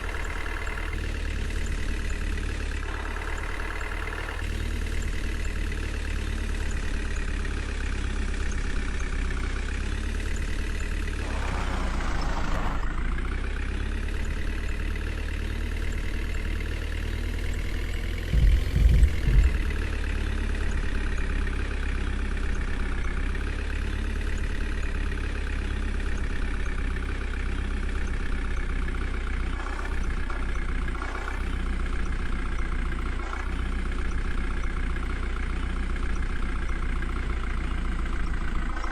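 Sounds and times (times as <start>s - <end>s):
diesel engine running: 0.0s - 38.9s
low thumps: 18.3s - 19.8s.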